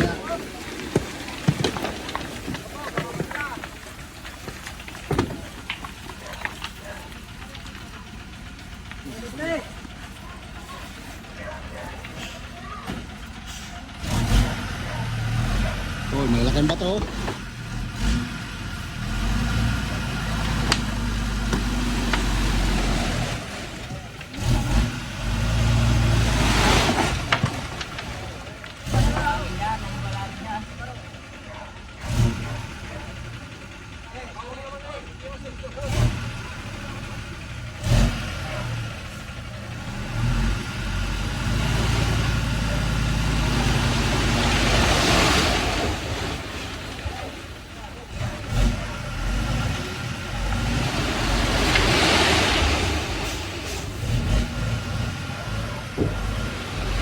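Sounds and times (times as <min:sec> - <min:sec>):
vehicle engine running at low revs: 0:00.0 - 0:57.0.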